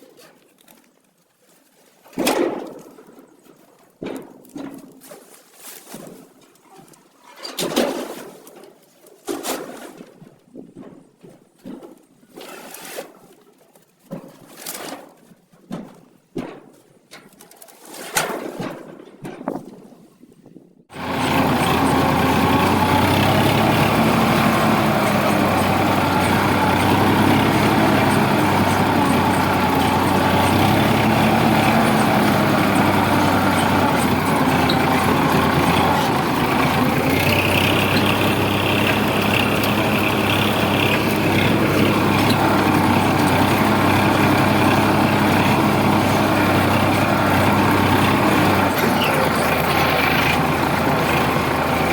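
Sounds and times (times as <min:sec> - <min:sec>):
tractor diesel engine under load: 0:20.9 - 0:51.9.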